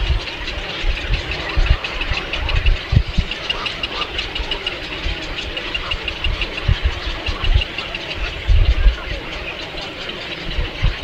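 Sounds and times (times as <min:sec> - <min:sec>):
low rumbling thumps: 0:00.0 - 0:03.8, 0:04.4 - 0:09.2
small birds peeping: 0:00.0 - 0:11.0.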